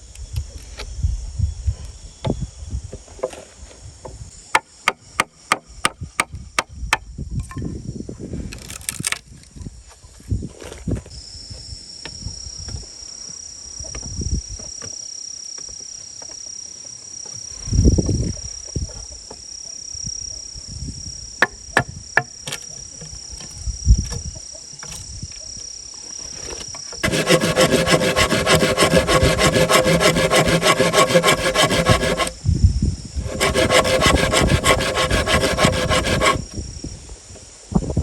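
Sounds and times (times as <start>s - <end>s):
bamboo being sawn: 8.6s - 9.2s, 27.0s - 32.4s, 33.2s - 36.6s.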